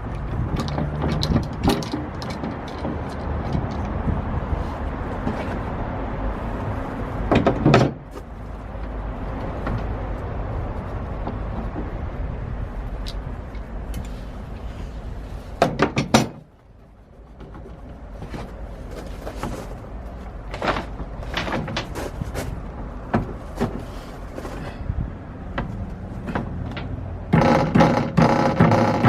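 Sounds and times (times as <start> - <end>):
low rumble: 0.0 - 7.3
clamps clicking and clunking: 0.1 - 4.0, 15.6 - 16.5, 20.5 - 24.7.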